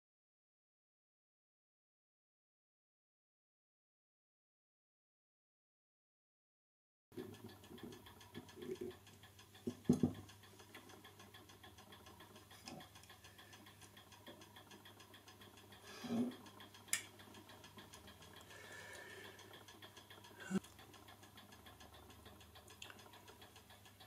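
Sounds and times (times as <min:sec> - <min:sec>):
faint steady hum: 0:07.2 - 0:24.0.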